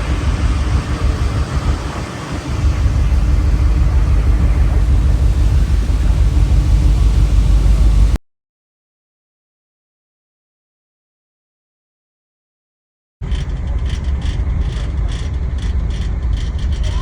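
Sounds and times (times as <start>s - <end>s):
vehicle engine rumbling: 0.0s - 8.2s, 13.2s - 17.0s.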